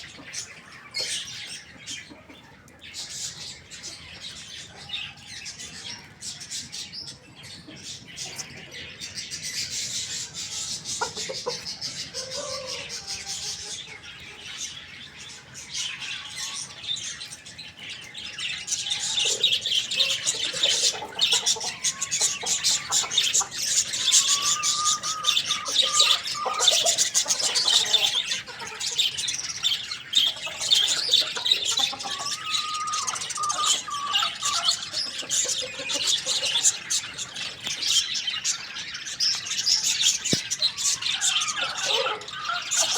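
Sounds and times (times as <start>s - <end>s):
small birds chirping: 0.0s - 42.9s
lower bird calls: 18.7s - 28.3s.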